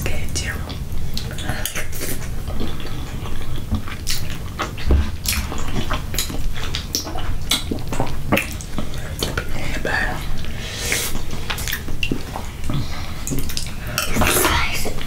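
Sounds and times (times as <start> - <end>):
chewing rice: 0.7 - 15.0
wet mouth clicks and smacks: 3.8 - 9.5, 10.3 - 13.8.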